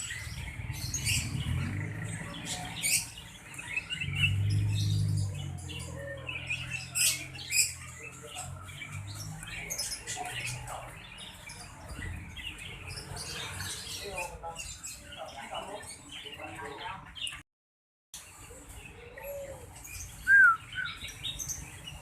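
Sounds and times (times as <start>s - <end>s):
bird squeaky chirps and calls: 0.0s - 17.4s, 18.2s - 22.0s.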